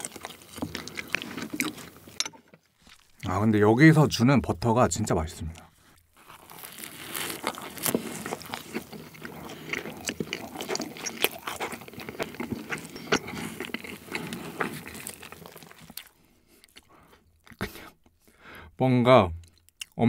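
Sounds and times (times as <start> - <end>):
crusty bread crunching: 0.0 - 2.2, 2.8 - 3.4, 5.5 - 17.9.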